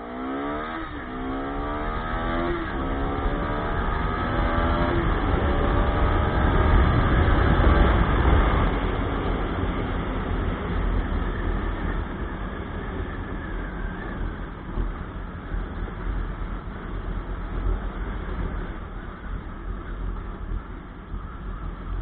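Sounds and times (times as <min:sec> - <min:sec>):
motorcycle engine: 0:00.0 - 0:14.0.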